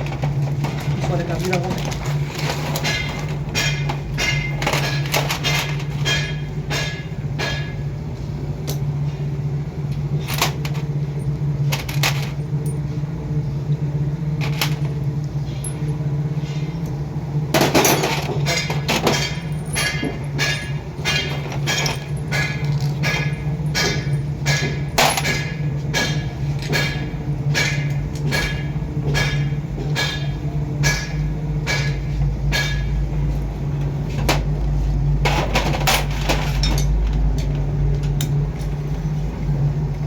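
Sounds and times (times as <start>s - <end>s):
metal tools tapping and clanking: 0.0s - 7.8s, 17.6s - 33.0s, 35.2s - 38.8s
steady low hum: 0.0s - 40.0s.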